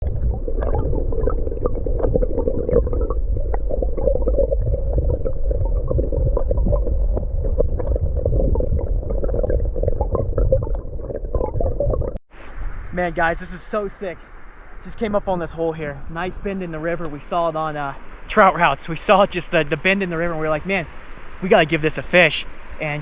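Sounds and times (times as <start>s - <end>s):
stream water rushing: 12.4s - 23.0s.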